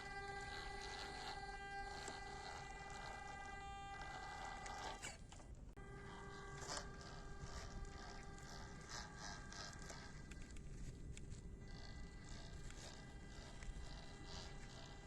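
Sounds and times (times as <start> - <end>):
electric motor and gearbox whine: 0.0 - 15.0
scattered clicks: 6.6 - 15.0.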